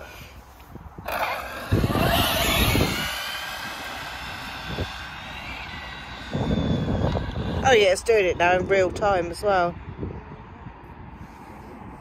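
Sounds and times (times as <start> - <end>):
rc car motor whine: 1.0 - 9.0.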